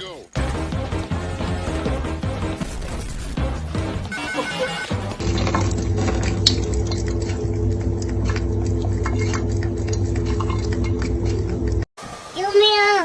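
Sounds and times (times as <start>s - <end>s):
steady low hum: 5.2s - 11.9s.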